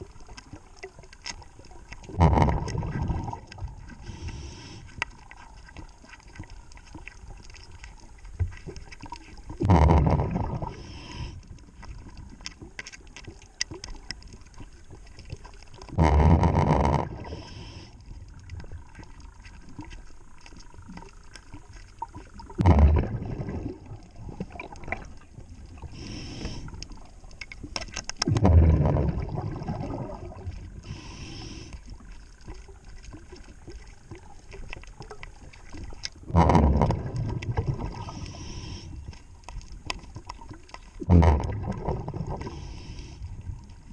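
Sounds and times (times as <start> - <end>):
underwater bubbles rushing: 0.0 - 43.9
faint hiss: 25.5 - 27.4, 30.7 - 32.0, 37.9 - 39.2
small clicks: 26.6 - 28.5.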